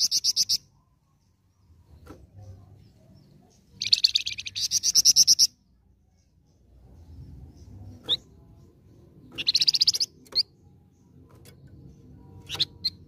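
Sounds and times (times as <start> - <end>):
songbird chirping and trilling: 0.0 - 13.0.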